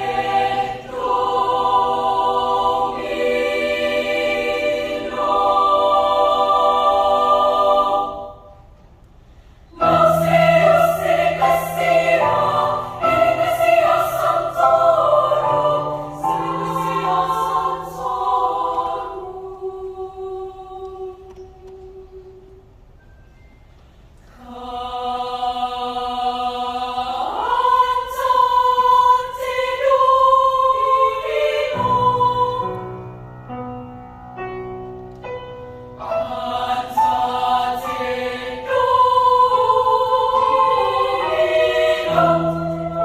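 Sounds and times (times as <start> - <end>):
children's choir singing: 0.0 - 8.7, 9.7 - 22.8, 24.2 - 33.3, 35.9 - 43.0.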